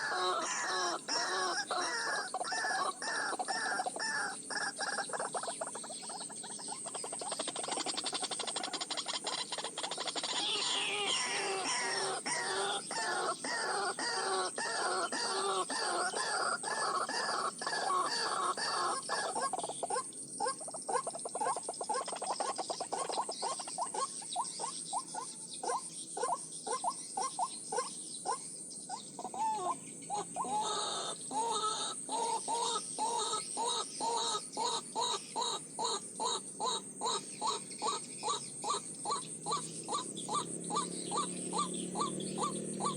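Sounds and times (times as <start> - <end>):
waterhen calling: 0.0 - 5.0, 8.4 - 19.5, 29.2 - 42.9.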